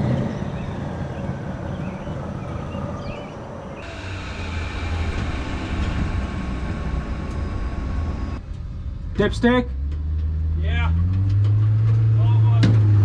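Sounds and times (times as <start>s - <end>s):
car engine low rumble: 0.0s - 13.0s.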